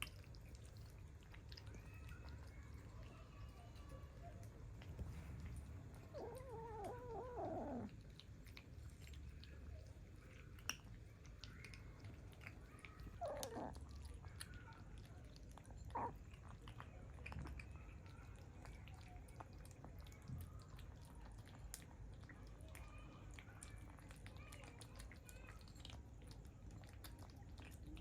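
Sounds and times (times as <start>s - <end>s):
kitten meowing: 6.2s - 7.9s.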